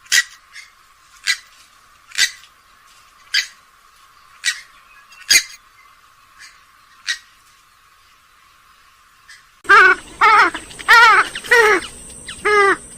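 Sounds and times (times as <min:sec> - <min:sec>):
bird giving sharp calls: 0:00.0 - 0:01.5, 0:02.1 - 0:02.4, 0:04.4 - 0:05.6, 0:09.3 - 0:12.9.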